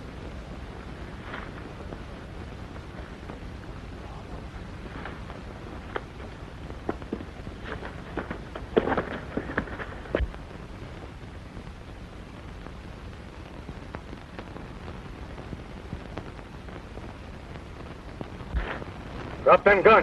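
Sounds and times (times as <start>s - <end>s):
faint crackles and ticks: 0.0s - 20.0s
film soundtrack hiss: 0.0s - 20.0s.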